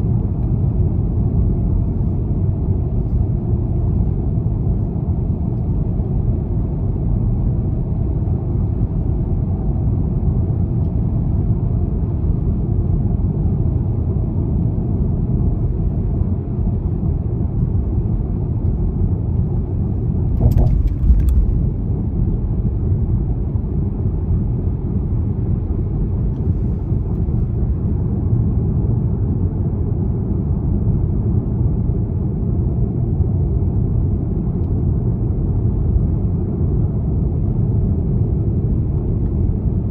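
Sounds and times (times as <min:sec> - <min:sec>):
road noise: 0:00.0 - 0:29.5
diesel car engine rumble: 0:00.0 - 0:39.9.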